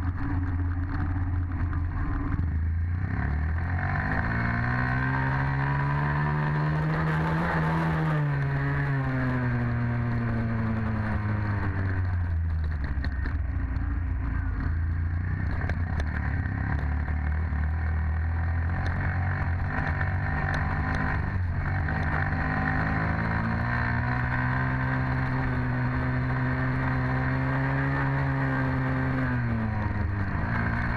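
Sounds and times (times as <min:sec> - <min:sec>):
dirt bike engine revving: 0:03.0 - 0:11.7, 0:18.4 - 0:30.9.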